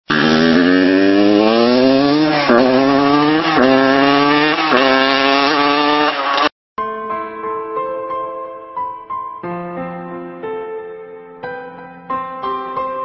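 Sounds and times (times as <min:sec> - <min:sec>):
dirt bike engine accelerating: 0:00.1 - 0:06.5.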